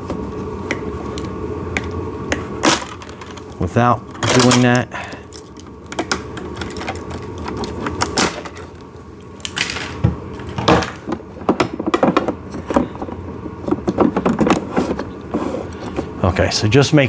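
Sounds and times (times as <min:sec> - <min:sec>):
plastic toy handling clicks and rattles: 0:04.1 - 0:08.7.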